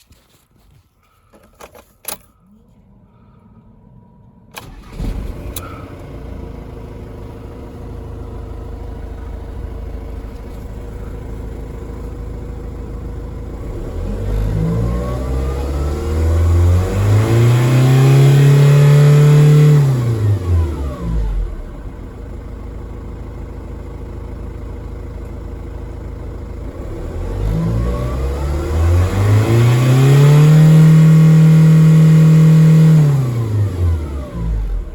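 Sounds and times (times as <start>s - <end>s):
diesel engine starting and idling: 0.8s - 34.9s
engine revving: 4.5s - 22.2s, 26.7s - 34.9s.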